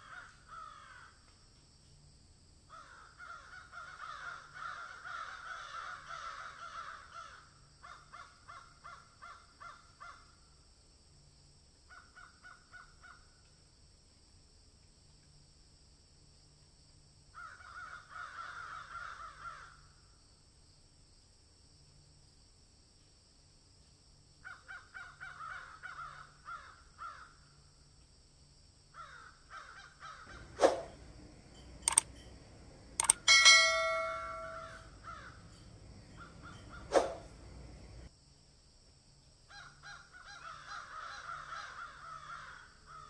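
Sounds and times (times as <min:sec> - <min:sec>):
bird cawing: 0:00.0 - 0:01.2, 0:02.7 - 0:10.2, 0:17.4 - 0:19.8, 0:24.5 - 0:27.4, 0:29.0 - 0:38.1, 0:39.5 - 0:43.0
sharp clicks: 0:31.6 - 0:34.8.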